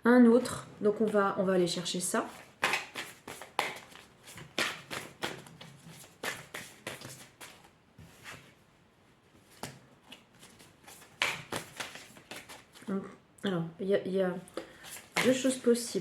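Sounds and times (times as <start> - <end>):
cards being shuffled: 2.3 - 7.7, 9.5 - 12.9, 14.8 - 15.6.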